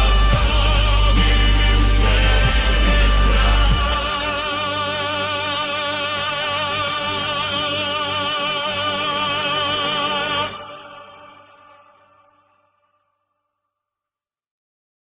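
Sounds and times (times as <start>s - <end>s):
heavy bass: 0.0s - 10.6s
choir holding a long chord: 0.0s - 12.6s.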